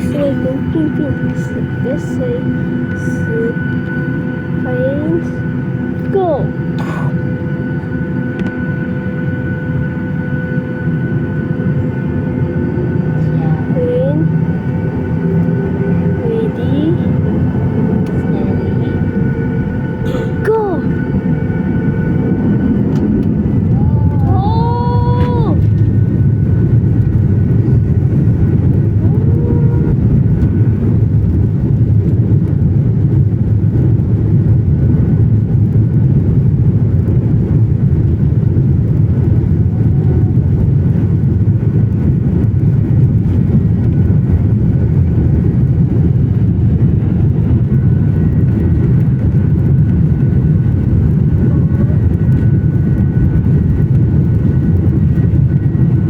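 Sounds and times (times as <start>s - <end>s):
jet engines rumbling in cabin: 0.0s - 56.0s.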